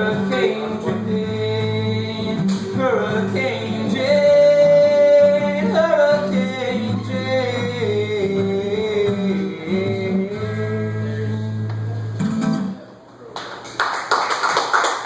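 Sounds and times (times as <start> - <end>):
acoustic guitar playing: 0.0 - 13.0
people clapping: 13.3 - 15.0.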